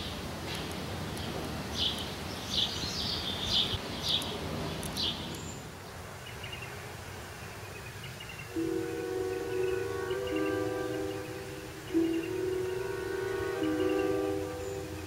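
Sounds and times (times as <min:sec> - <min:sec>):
low outdoor background: 0:00.0 - 0:15.0
songbirds chirping: 0:00.0 - 0:15.0
faint high tone: 0:08.6 - 0:15.0.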